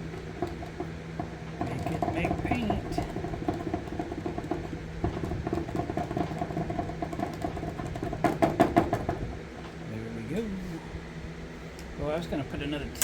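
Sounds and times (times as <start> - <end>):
marker mixing ball rattling: 0.0 - 9.3
steady low hum: 0.0 - 13.0.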